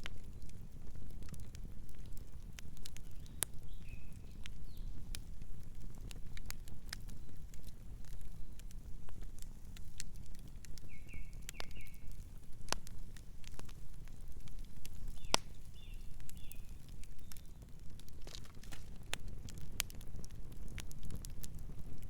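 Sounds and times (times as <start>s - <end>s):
campfire crackling and popping: 0.0s - 22.0s
bird chirping softly: 2.9s - 5.1s, 10.8s - 12.2s, 14.9s - 17.7s.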